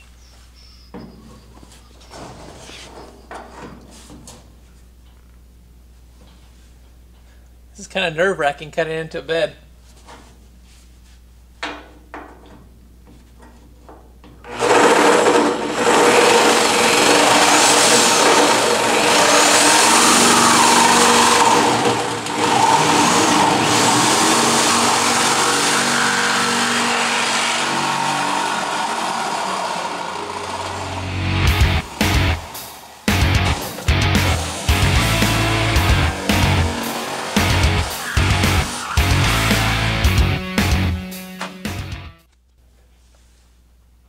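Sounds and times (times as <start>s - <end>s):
reciprocating saw cutting sheet steel: 14.5s - 40.1s.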